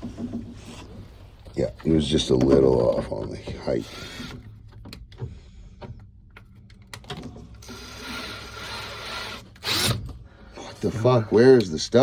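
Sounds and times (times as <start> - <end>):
cordless drill driving screw: 3.8 - 4.4, 7.6 - 10.0.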